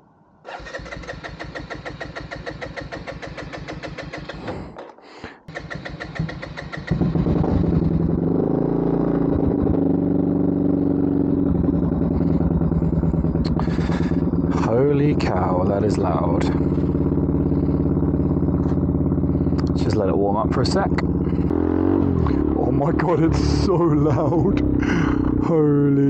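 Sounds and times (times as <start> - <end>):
motorcycle engine starter chatter: 0.5 - 8.0, 11.8 - 21.5
motorcycle engine idling loudly: 0.6 - 4.8, 5.5 - 26.0.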